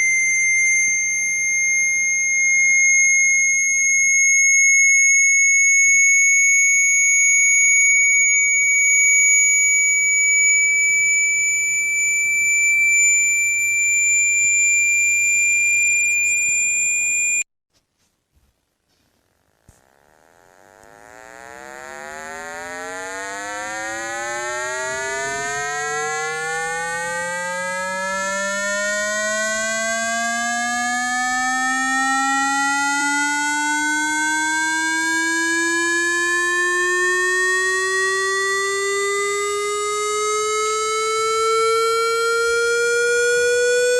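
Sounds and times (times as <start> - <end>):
low tone sweeping upward: 9.2 - 17.4, 19.8 - 38.5.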